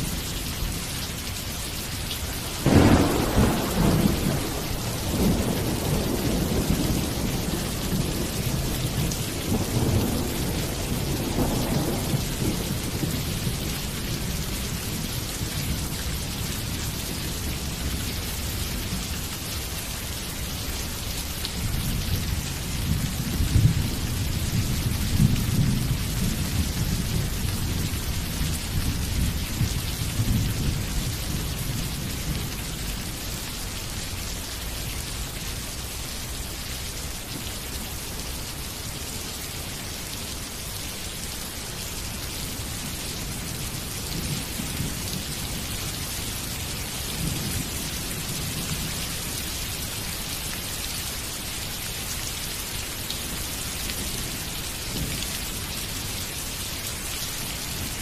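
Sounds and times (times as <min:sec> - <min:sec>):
steady rain falling: 0:00.0 - 0:58.0
thunder rumbling: 0:02.4 - 0:16.2.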